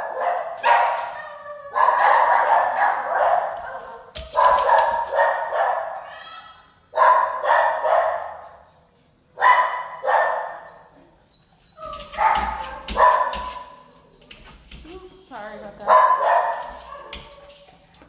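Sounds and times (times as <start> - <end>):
dog barking: 0.0 - 6.0, 6.9 - 8.5, 9.4 - 10.8, 11.8 - 13.8, 15.8 - 17.4.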